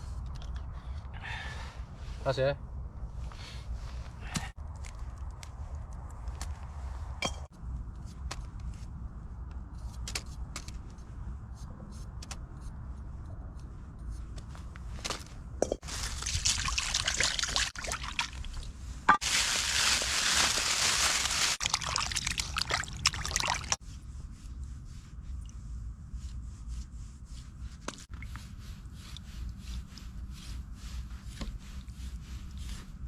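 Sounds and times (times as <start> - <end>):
liquid pouring: 15.9 - 18.6, 21.0 - 23.8.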